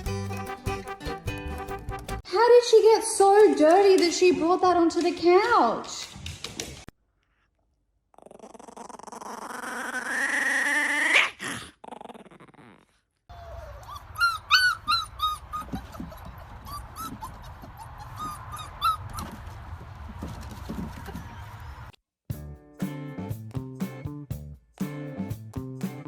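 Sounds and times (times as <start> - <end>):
dog whining rising in pitch: 12.6 - 19.4
dog whimpers and yips: 13.3 - 19.4.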